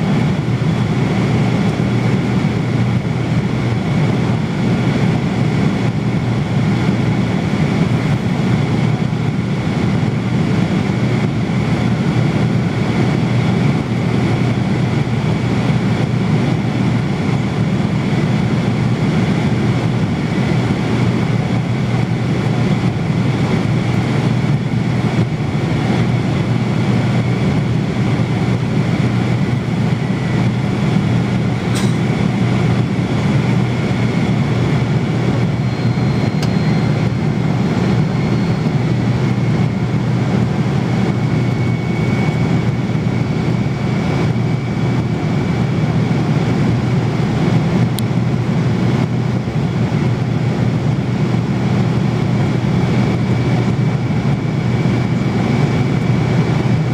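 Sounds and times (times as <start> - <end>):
airliner cabin drone: 0.0 - 56.9
faint high whine: 28.5 - 45.6.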